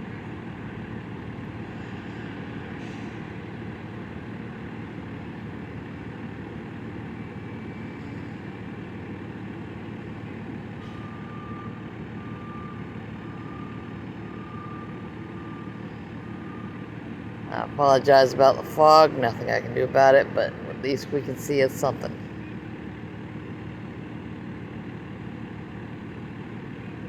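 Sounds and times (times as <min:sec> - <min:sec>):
truck reversing alarm beeping: 0:00.1 - 0:27.0.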